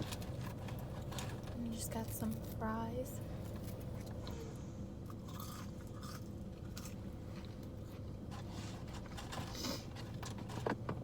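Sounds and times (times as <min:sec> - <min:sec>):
person chewing fries: 0:05.0 - 0:08.0.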